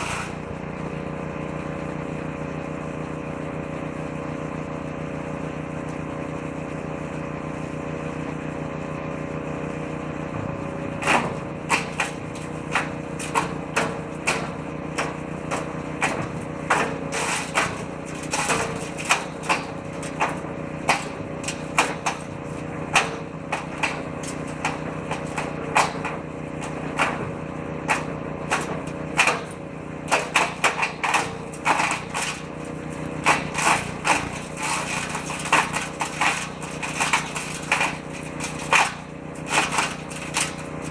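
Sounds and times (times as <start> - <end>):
woodchipper engine running: 0.0 - 40.9
branches cracking in chipper: 11.0 - 40.9.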